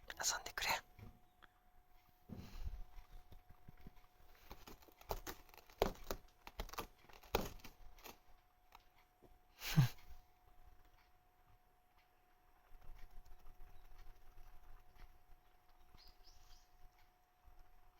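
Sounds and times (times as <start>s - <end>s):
cat rustling and scratching: 2.0s - 9.3s, 12.4s - 17.9s.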